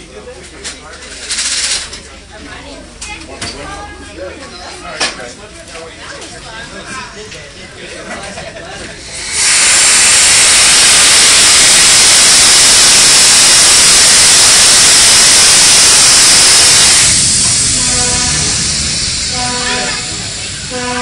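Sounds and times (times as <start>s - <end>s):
air brake hissing: 9.1s - 21.0s.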